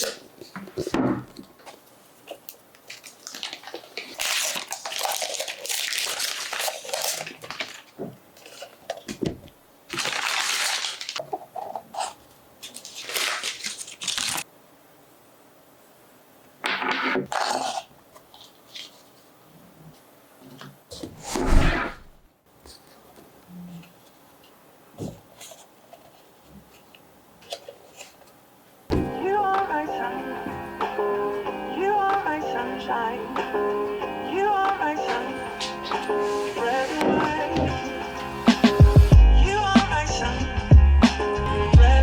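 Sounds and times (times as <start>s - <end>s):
paper and cardboard rustling: 0.0s - 14.5s, 17.3s - 22.0s, 22.6s - 28.4s, 34.5s - 37.8s.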